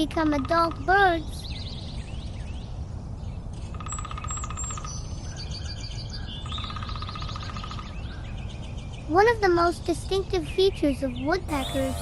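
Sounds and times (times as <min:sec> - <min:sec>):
birds calling: 0:11.1 - 0:12.0.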